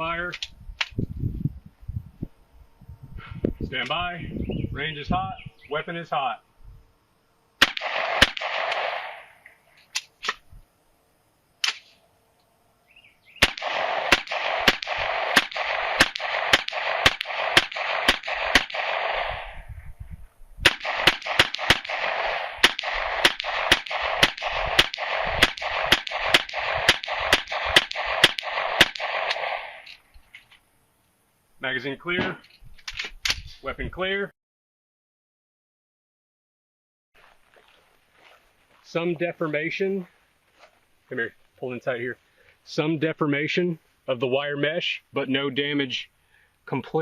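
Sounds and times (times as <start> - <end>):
semi-automatic gunfire: 7.6 - 9.4, 13.4 - 19.7, 20.6 - 29.9.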